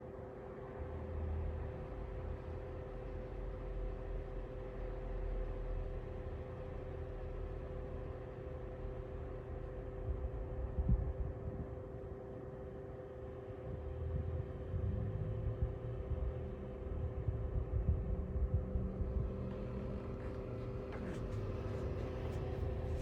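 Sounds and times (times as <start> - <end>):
space heater blower fan: 0.0 - 23.0
low rumble: 13.6 - 23.0.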